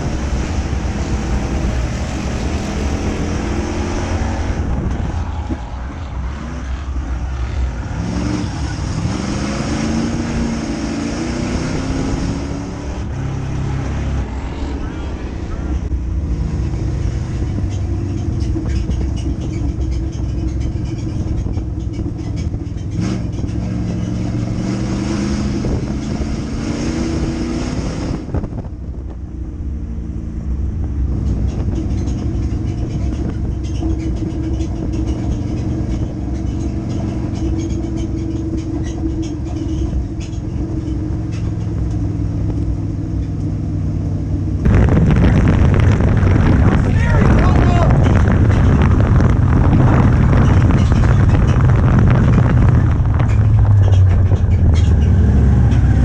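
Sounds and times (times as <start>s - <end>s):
rush of noise: 0.0s - 21.6s, 44.1s - 56.0s
race car engine running hard: 0.0s - 56.0s.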